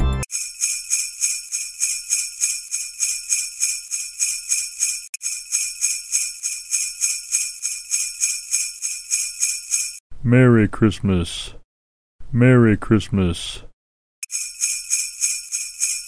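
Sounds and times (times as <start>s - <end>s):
sleigh bells shaken: 0.3s - 10.0s, 14.2s - 16.0s.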